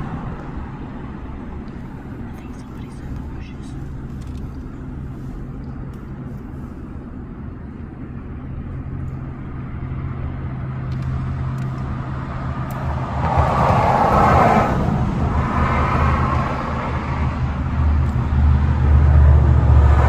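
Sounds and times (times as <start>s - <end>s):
vehicle engine idling: 0.0s - 20.0s
rushing noise: 9.7s - 20.0s.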